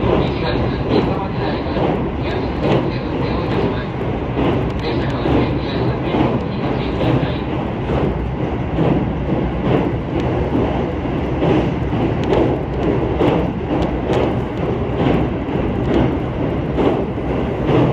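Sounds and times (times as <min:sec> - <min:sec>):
train interior low rumble: 0:00.0 - 0:17.9.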